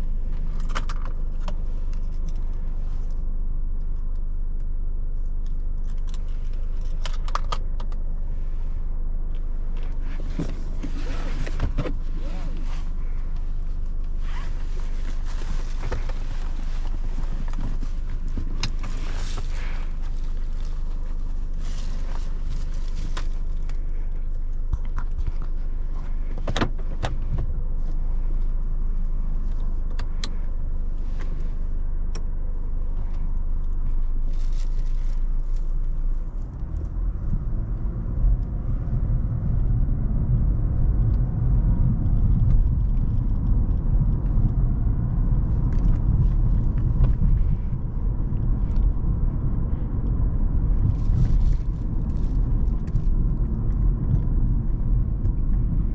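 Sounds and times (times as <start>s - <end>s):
car engine rumble inside cabin: 0.0s - 55.9s.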